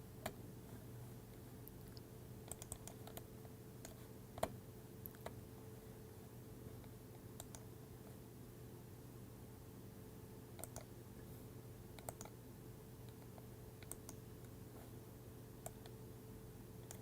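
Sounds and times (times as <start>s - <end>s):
faint steady hum: 0.0s - 17.0s
mouse and keyboard clicks: 1.9s - 5.4s, 7.4s - 7.7s, 10.6s - 10.9s, 12.0s - 12.4s, 13.1s - 14.2s.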